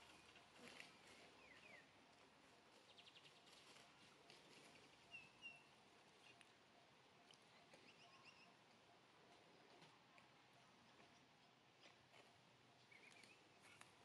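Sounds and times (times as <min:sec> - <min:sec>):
bird chirps: 0:05.0 - 0:08.6, 0:12.8 - 0:14.0.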